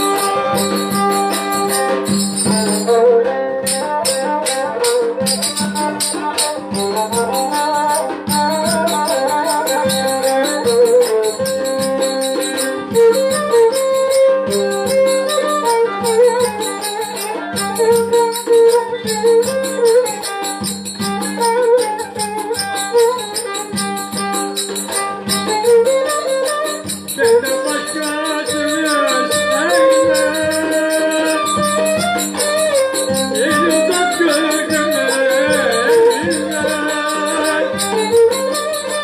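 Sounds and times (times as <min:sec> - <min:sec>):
fast rattling percussion: 0:00.0 - 0:39.0
voice singing: 0:33.2 - 0:38.4.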